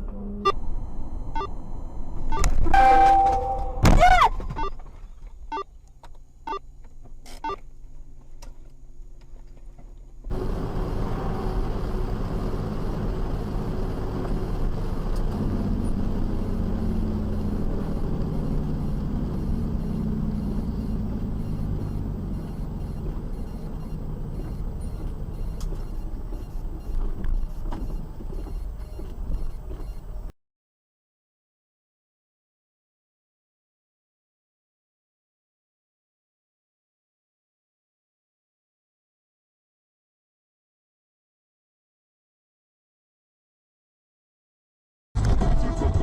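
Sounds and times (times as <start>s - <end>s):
car engine and road rumble: 0.0s - 30.3s, 45.2s - 46.0s.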